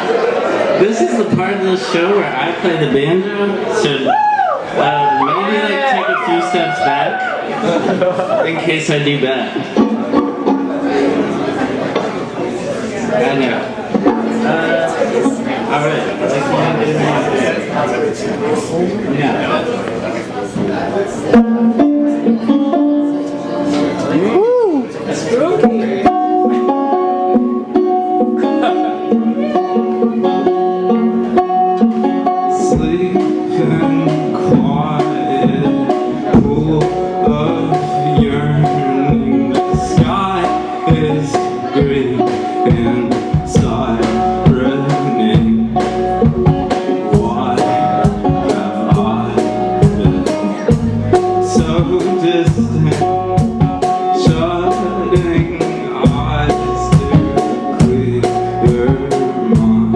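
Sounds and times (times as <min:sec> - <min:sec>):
plucked banjo: 0:00.0 - 0:03.2, 0:07.6 - 0:17.4, 0:21.3 - 0:24.2, 0:25.1 - 0:59.9
drums: 0:13.9 - 0:14.7, 0:20.5 - 0:59.9
bass: 0:21.1 - 0:59.9.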